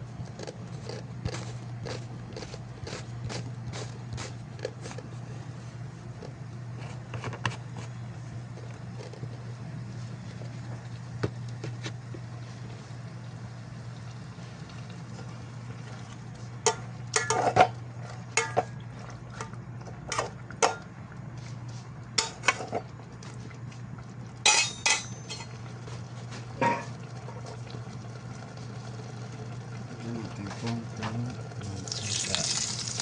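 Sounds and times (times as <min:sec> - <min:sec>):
steady low hum: 0:00.0 - 0:33.0
dishes and utensils clinking: 0:24.5 - 0:25.6, 0:26.6 - 0:26.9.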